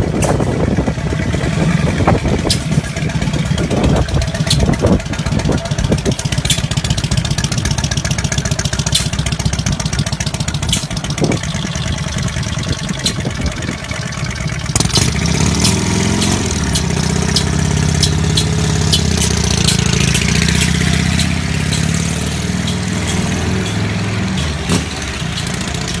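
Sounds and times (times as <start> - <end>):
engine idling: 0.0 - 26.0
clicks: 4.0 - 5.0, 14.9 - 26.0.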